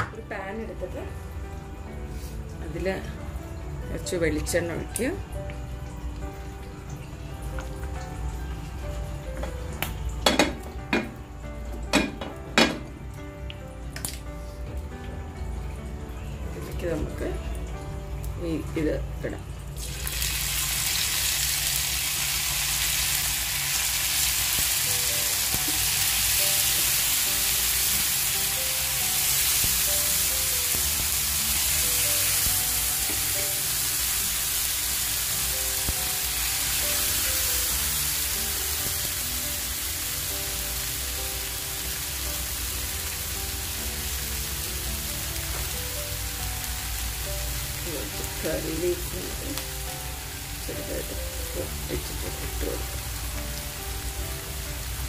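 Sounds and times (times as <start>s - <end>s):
faint background music: 0.0s - 55.0s
food sizzling in oil: 19.6s - 55.0s.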